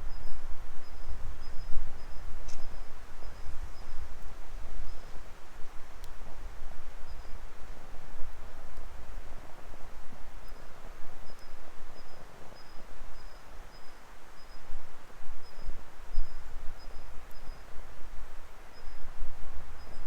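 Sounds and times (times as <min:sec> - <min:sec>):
fire crackling: 0:01.0 - 0:14.7.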